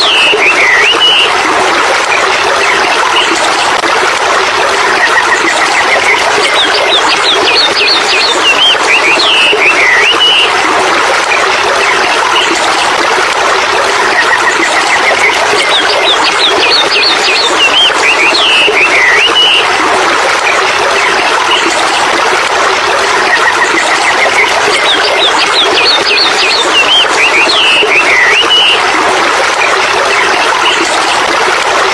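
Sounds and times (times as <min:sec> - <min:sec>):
birds chirping: 0:00.0 - 0:01.3, 0:05.2 - 0:10.6, 0:14.3 - 0:19.7, 0:23.4 - 0:29.0, 0:29.6 - 0:31.2.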